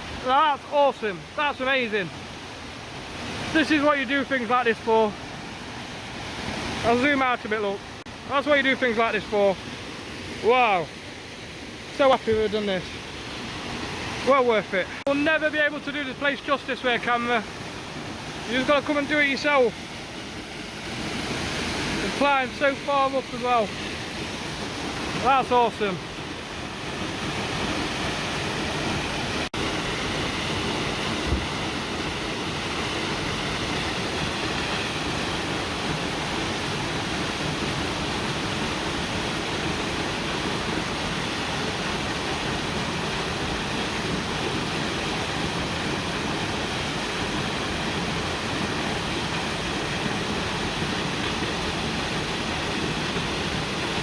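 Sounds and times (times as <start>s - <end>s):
waterfall rushing: 0.0s - 54.0s
short low thump: 31.2s - 31.5s.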